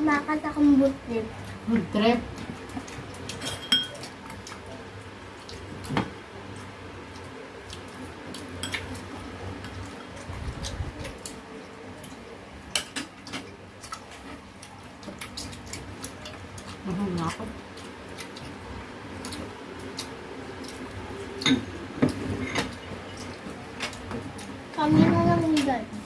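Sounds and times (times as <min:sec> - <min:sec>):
utensils clinking on plates: 0:03.3 - 0:04.2, 0:21.4 - 0:24.0.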